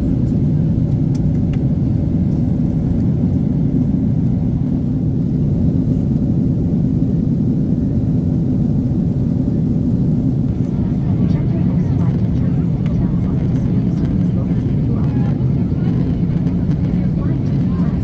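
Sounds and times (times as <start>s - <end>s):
jet engine and airflow rumble: 0.0s - 18.0s.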